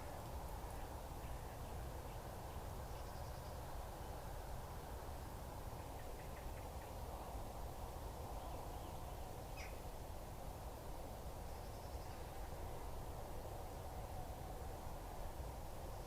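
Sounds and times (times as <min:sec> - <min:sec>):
microphone hiss: 0:00.0 - 0:16.0
faint bird calls: 0:09.5 - 0:09.8.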